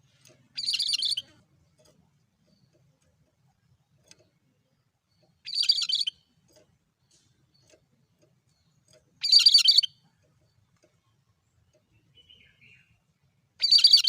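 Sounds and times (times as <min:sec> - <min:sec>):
bird chattering call: 0:00.6 - 0:01.4, 0:05.4 - 0:06.1, 0:09.2 - 0:09.9.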